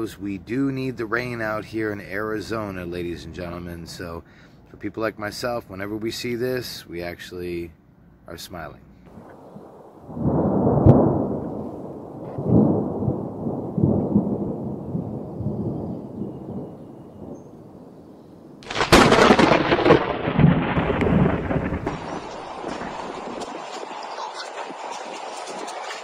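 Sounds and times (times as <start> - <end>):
thunder rumbling: 9.1 - 26.0
sharp crash of thunder: 9.2 - 15.8, 18.6 - 23.9.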